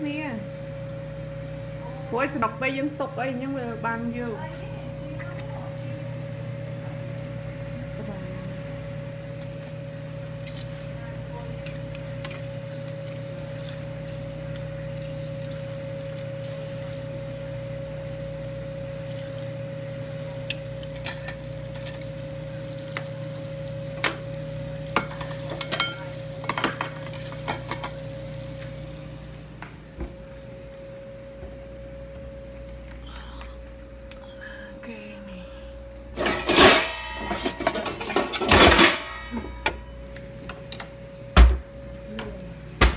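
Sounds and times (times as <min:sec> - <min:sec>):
constant hum: 0:00.0 - 0:42.9
meatballs sizzling in hot oil: 0:11.9 - 0:28.6
metal tongs clinking on strainer: 0:20.5 - 0:22.1, 0:25.0 - 0:28.0.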